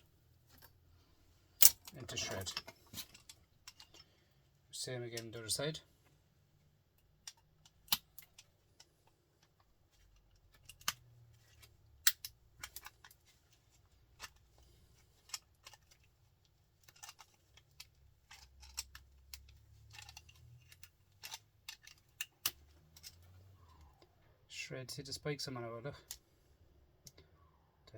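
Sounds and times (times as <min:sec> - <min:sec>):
screwdriver clicking and scraping metal: 0:01.6 - 0:04.1, 0:07.2 - 0:16.2, 0:16.8 - 0:23.4.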